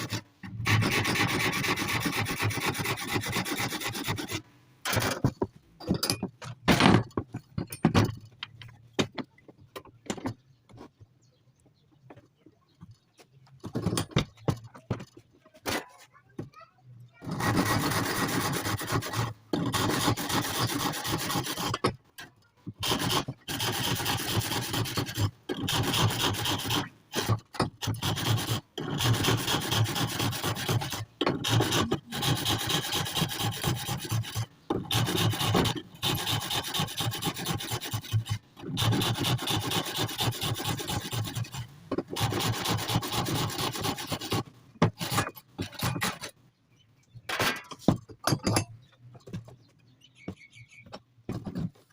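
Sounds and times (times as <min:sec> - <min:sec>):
hand file rasping: 0:00.0 - 0:05.1, 0:17.2 - 0:21.8, 0:22.8 - 0:46.3.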